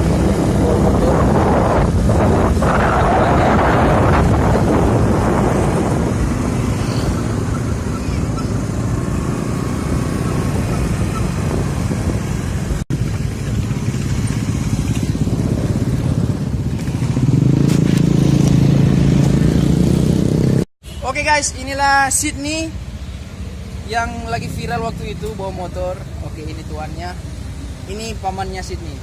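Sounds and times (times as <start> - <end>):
road and wind noise: 0.0 - 29.0
motorcycle engine running: 3.8 - 20.6.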